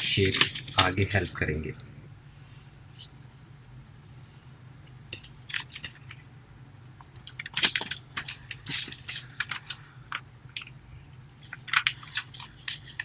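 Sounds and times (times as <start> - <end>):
paper folding rustles: 0.0 - 1.4, 7.1 - 10.7, 11.4 - 13.0.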